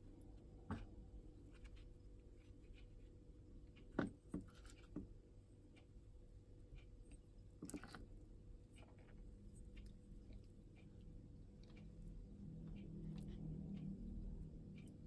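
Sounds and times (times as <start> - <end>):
light knocks and taps: 3.9 - 5.1.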